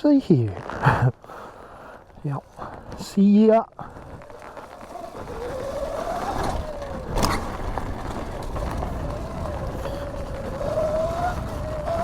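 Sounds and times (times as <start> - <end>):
wind rumble on microphone: 3.8 - 12.0
electric motor and chain whining: 4.0 - 12.0.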